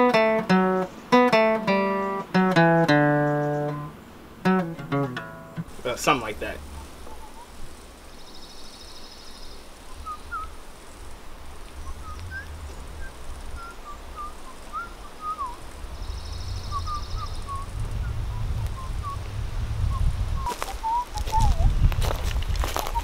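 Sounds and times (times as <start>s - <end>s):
wild birds chirping: 0.0s - 21.7s
low steady rumble: 5.2s - 8.1s, 9.8s - 20.4s
high rapid bird trill: 11.8s - 19.2s.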